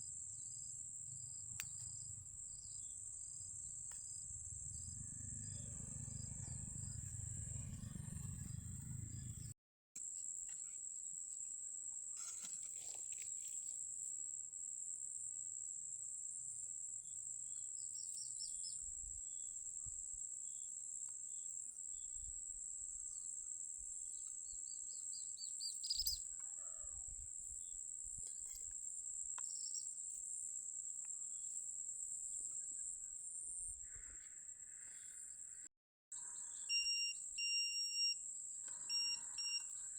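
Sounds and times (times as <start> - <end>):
insect chorus: 0.0 - 39.9
low rumble: 0.4 - 9.6.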